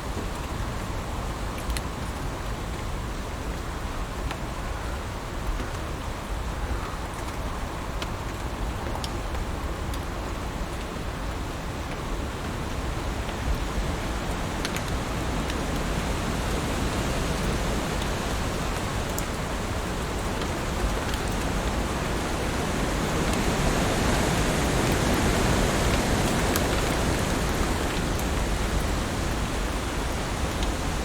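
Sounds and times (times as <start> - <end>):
heavy rain falling: 8.3 - 31.0.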